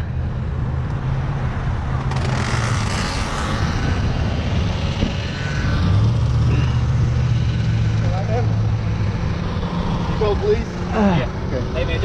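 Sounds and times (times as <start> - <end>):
vehicle engine humming: 0.0 - 12.0
rush of noise: 1.2 - 12.0.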